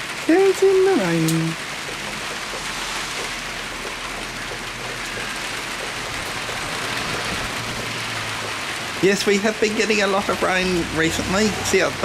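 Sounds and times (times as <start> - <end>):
steady rain pattering: 0.0 - 12.0.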